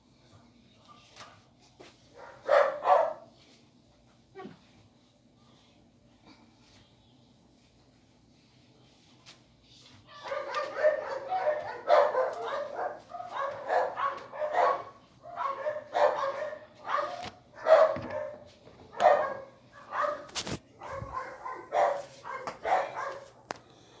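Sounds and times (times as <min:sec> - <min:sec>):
dog barking: 0:02.2 - 0:03.3, 0:10.1 - 0:23.4.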